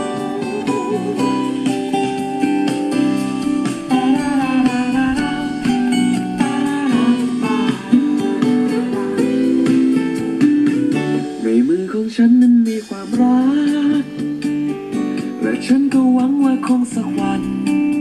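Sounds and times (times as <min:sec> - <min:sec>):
acoustic guitar strummed and plucked: 0:00.0 - 0:18.0
pop song on a portable stereo: 0:00.0 - 0:18.0.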